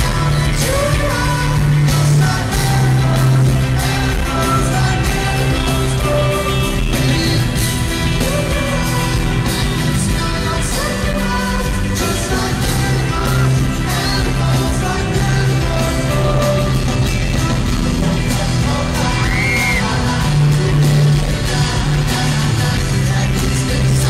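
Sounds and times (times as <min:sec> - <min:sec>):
live pop-rock band: 0:00.0 - 0:24.0
person singing: 0:00.0 - 0:24.0.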